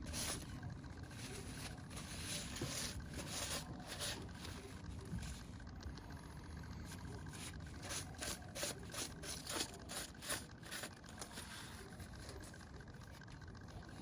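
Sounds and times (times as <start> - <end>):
metal scraping on sandpaper: 0.0 - 0.5, 1.1 - 4.7, 7.3 - 12.5.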